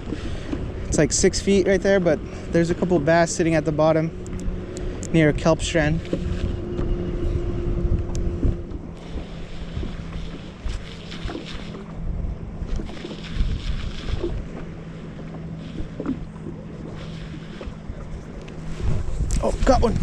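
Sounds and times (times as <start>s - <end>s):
steady low hum: 0.0s - 20.0s
wind on microphone: 4.0s - 20.0s.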